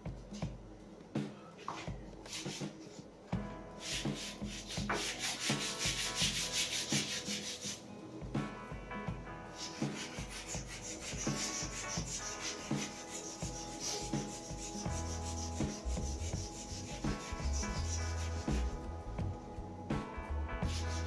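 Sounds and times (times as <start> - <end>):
sandpaper rubbing on wood: 3.8 - 7.8, 9.6 - 18.9, 20.6 - 21.0.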